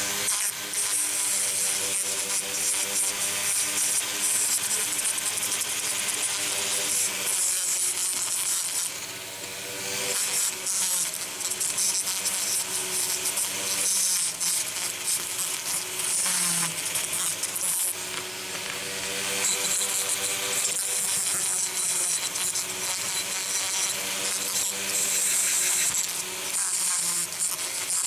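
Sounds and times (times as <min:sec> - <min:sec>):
power tool grinding metal: 0:00.0 - 0:28.0.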